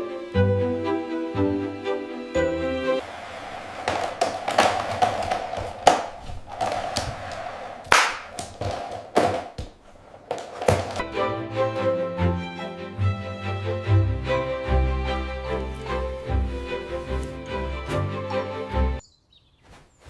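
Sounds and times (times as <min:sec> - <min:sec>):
irregular taps and thuds: 0:03.8 - 0:11.0.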